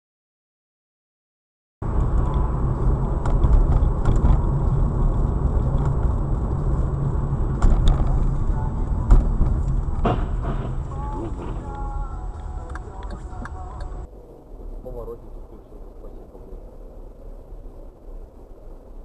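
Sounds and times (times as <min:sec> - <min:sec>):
car engine and road noise: 0:01.8 - 0:19.0
sharp knocks: 0:09.1 - 0:11.8.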